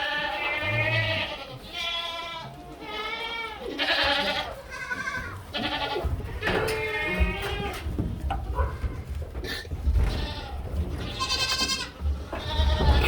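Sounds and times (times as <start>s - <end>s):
goats bleating: 0.0s - 7.9s, 8.6s - 13.0s.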